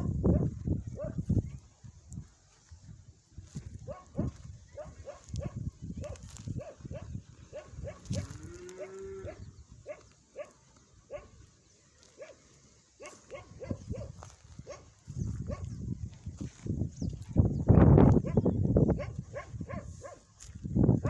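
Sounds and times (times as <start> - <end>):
farm animals calling: 3.9 - 15.7.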